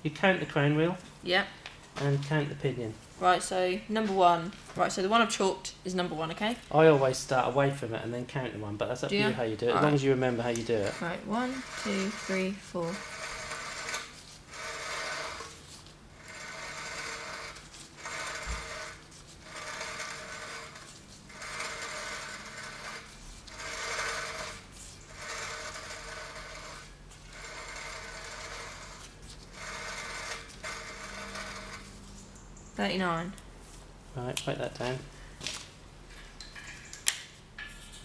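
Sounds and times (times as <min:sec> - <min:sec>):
gears rubbing and rasping: 0:09.2 - 0:32.4.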